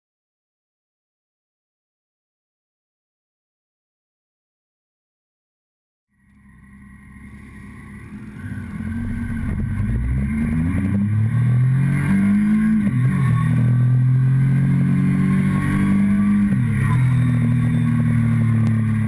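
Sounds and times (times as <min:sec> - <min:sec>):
motorcycle engine accelerating: 0:06.2 - 0:19.0.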